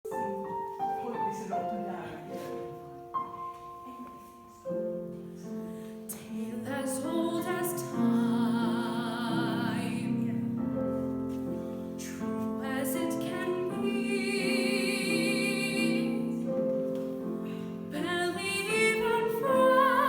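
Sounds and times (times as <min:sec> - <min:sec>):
piano playing slow melody: 0:00.1 - 0:20.0.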